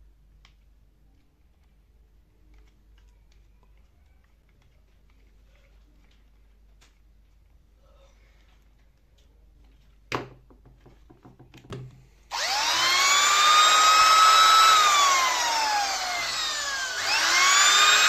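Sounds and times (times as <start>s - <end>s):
electric drill motor whining: 12.3s - 18.0s.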